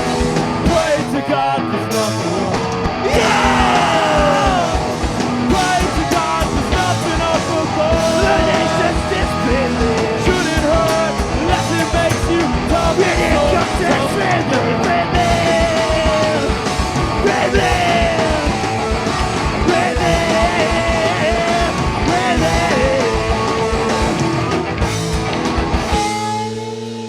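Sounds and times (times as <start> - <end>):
live rock band playing: 0.0 - 27.0
shouted vocals: 2.9 - 24.6.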